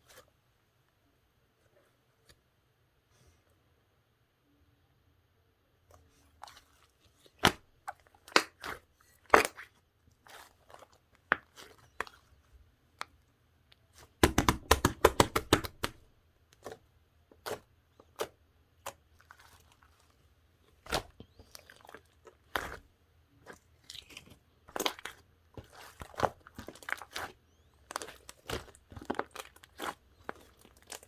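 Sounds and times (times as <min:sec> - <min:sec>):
slime popping and crackling: 0:14.2 - 0:16.0.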